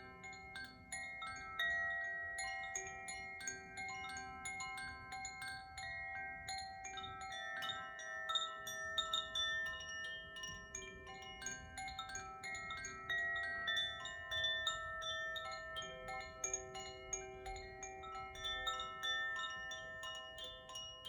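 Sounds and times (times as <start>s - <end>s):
chimes tinkling: 0.0s - 21.0s
crystal singing bowls ringing: 0.0s - 21.0s.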